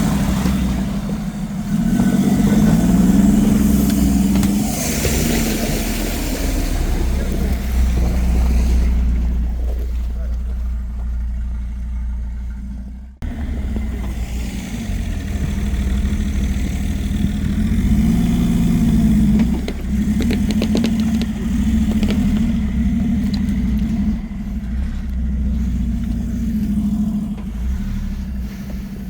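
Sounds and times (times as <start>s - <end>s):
off-road vehicle engine revving: 0.0s - 29.0s
clattering: 19.0s - 24.3s.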